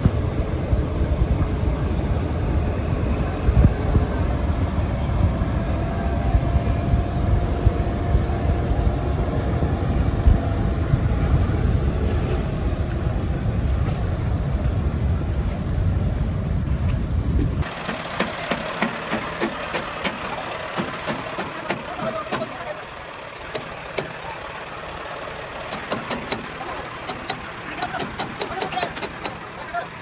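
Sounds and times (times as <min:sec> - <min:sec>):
wind buffeting microphone: 0:00.0 - 0:17.7
heavy tractor engines running: 0:00.0 - 0:30.0.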